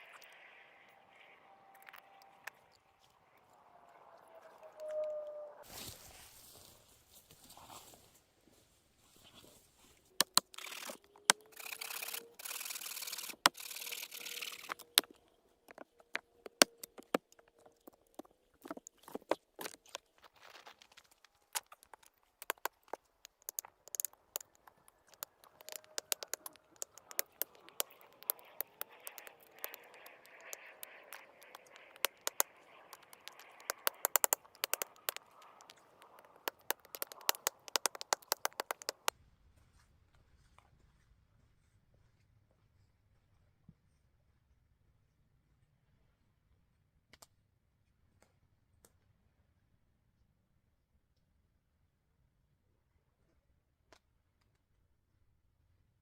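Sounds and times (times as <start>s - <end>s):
hissy scraping or rustling: 4.7s - 15.0s
sharp crackles and clicks: 10.1s - 39.1s.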